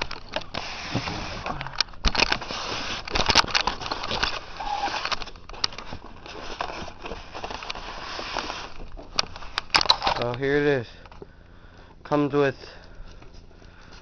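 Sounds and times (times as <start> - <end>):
packaging rustling and crinkling: 0.0 - 10.5.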